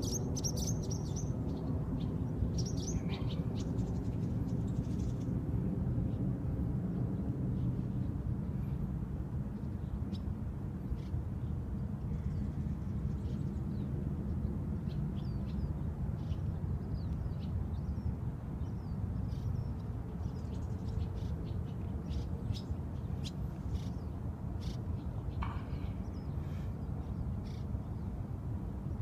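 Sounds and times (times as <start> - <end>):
birds chirping: 0.0 - 5.2, 14.8 - 28.2.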